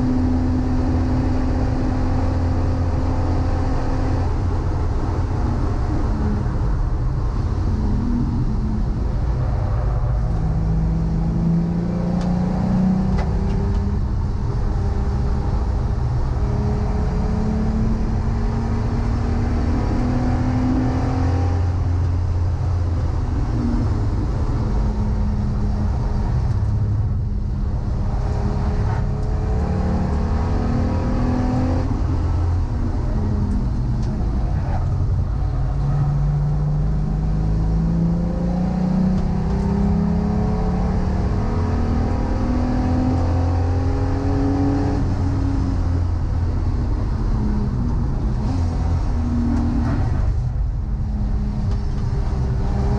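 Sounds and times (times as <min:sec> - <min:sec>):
road and wind noise: 0:00.0 - 0:52.9
race car engine accelerating: 0:27.7 - 0:52.9.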